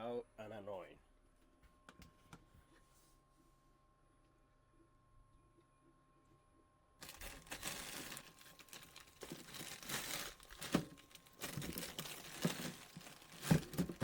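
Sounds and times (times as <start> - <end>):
plastic packaging crinkling: 7.0 - 14.0.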